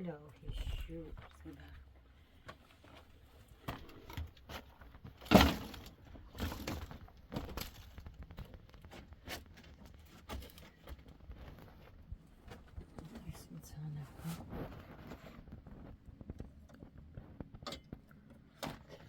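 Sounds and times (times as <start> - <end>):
irregular knocks and cracks: 3.6 - 11.7.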